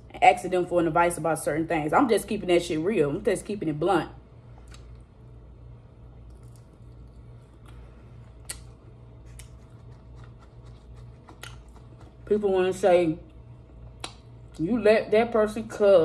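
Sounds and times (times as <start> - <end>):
steady low hum: 0.0 - 16.0
person chewing: 6.2 - 12.2, 13.6 - 14.6.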